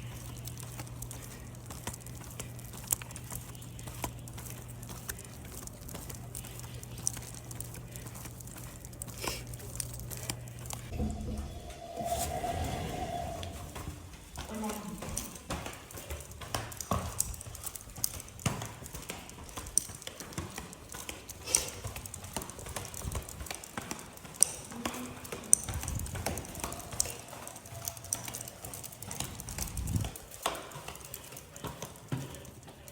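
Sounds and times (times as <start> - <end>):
low thuds: 10.9 - 14.3
light clicks and taps: 14.7 - 32.9.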